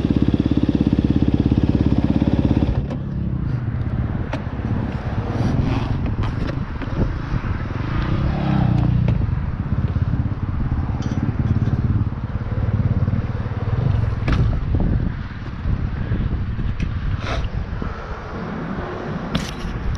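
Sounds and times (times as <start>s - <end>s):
motocross bike revving: 0.0s - 3.0s
sharp knocks from bike: 14.0s - 14.8s.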